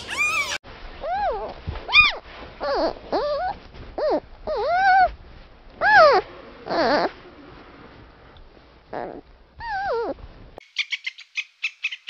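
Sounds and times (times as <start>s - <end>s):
animal high-pitched calls: 0.0s - 5.1s, 5.8s - 7.2s.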